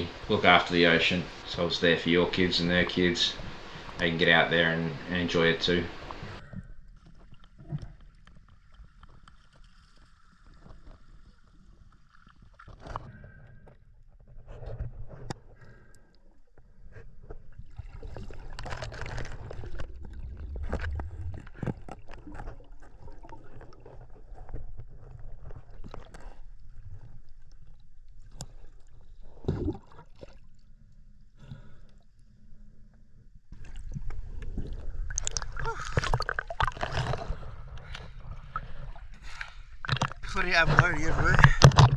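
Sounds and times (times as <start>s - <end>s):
steady low rumble: 0.0s - 6.4s, 19.1s - 22.7s
water splashes: 0.0s - 13.0s, 17.5s - 30.7s, 33.6s - 41.9s
water sloshing and gurgling: 0.0s - 41.9s.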